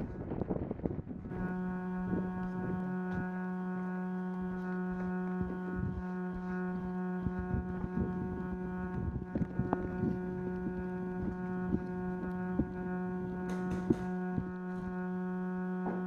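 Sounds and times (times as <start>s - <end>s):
steady horn tone: 0.0s - 16.0s
knocks and clicks: 13.5s - 14.5s.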